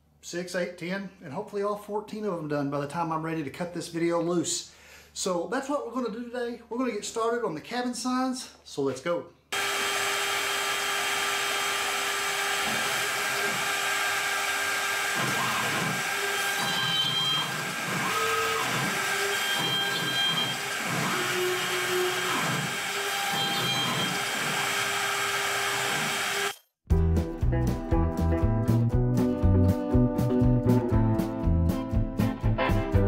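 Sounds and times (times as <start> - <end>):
router spindle high whine: 9.6 - 26.6
bit chattering cutting wood: 12.5 - 26.6.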